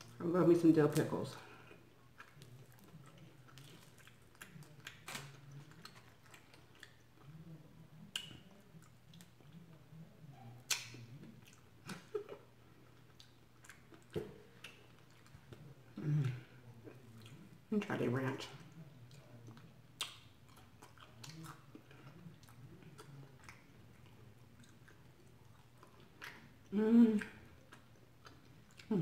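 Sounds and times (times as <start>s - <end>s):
person chewing: 1.5s - 9.9s, 10.6s - 17.6s, 18.7s - 29.0s.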